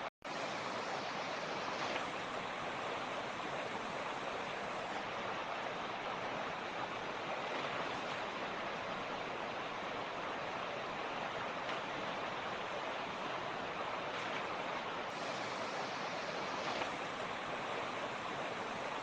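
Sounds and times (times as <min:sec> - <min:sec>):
water rushing over rocks: 0:00.0 - 0:19.0.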